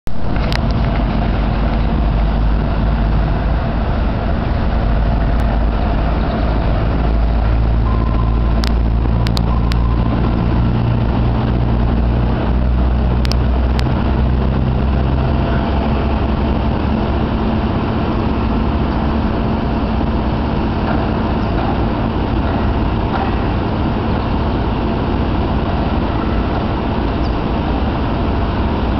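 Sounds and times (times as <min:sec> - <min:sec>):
sharp clicks: 0:08.6 - 0:09.9.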